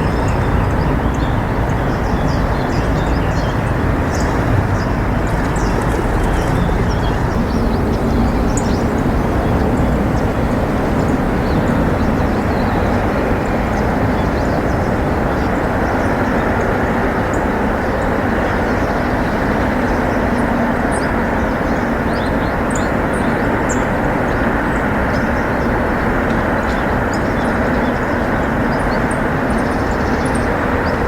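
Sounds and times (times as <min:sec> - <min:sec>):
low outdoor rumble: 0:00.0 - 0:20.4
small birds chirping: 0:00.0 - 0:31.0.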